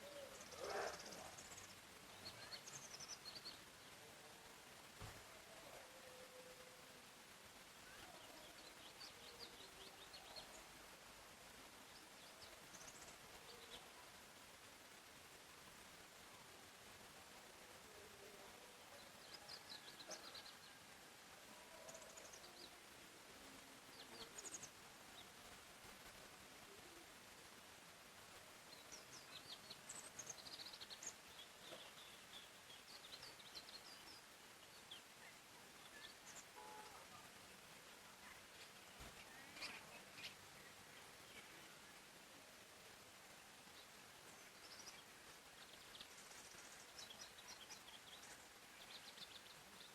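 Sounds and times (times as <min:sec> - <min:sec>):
background hiss: 0:00.0 - 0:49.9
small birds chirping: 0:00.0 - 0:49.9.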